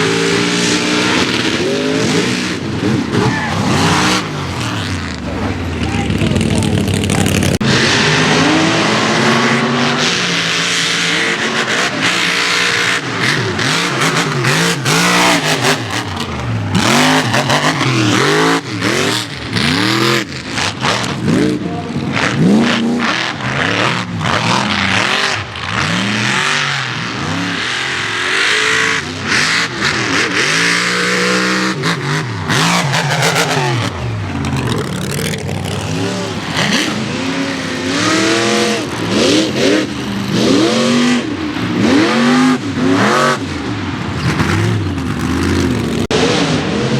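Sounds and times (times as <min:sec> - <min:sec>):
loud noisy rush: 0:00.0 - 0:22.2, 0:29.8 - 0:46.9
truck engines revving: 0:00.0 - 0:46.9.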